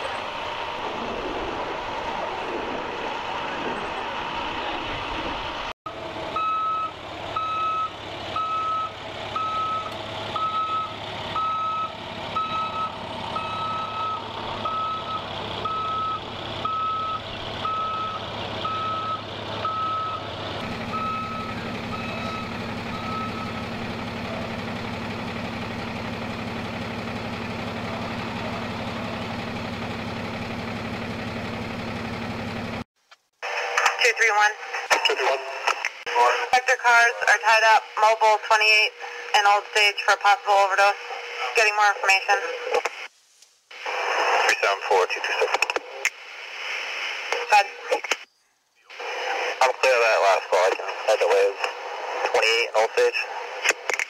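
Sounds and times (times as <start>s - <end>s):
vehicle engine idling: 5.0s - 32.8s
reverse warning alarm beeping: 6.4s - 24.5s.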